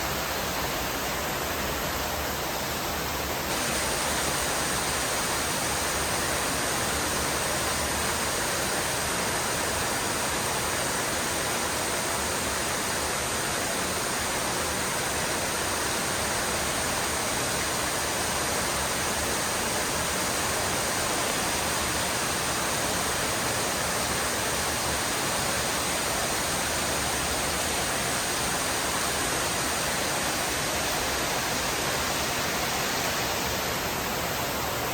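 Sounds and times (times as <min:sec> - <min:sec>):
heavy rain falling: 0:03.5 - 0:10.2.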